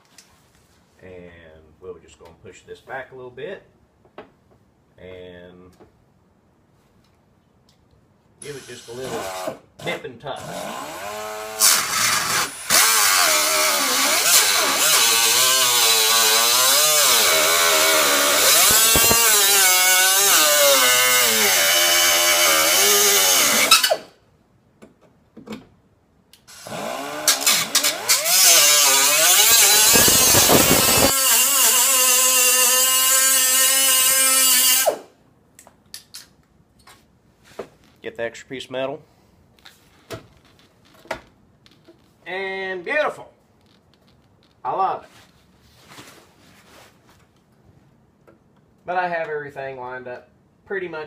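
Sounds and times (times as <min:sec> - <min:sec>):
die grinder cutting metal: 0:10.9 - 0:24.0, 0:26.6 - 0:35.0.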